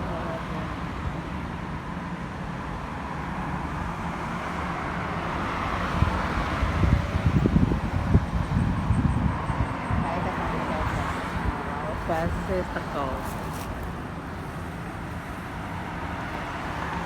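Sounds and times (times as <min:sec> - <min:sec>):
roadside traffic: 0:00.0 - 0:17.0
wind gusting on microphone: 0:05.2 - 0:14.6.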